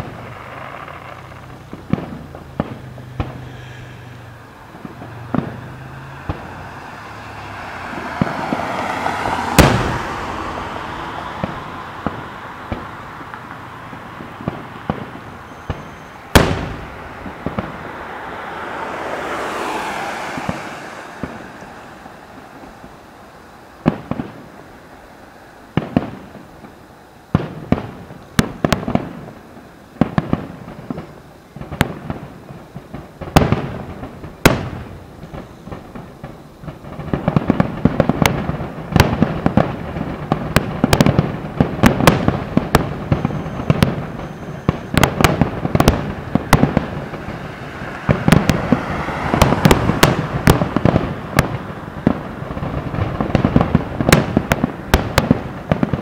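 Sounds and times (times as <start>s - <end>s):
fireworks bursting: 0.0s - 56.0s.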